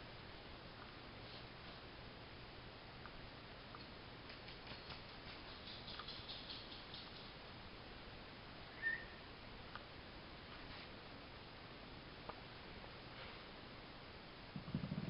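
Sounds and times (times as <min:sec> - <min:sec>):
quick clicks and scuffs: 0:04.2 - 0:07.2.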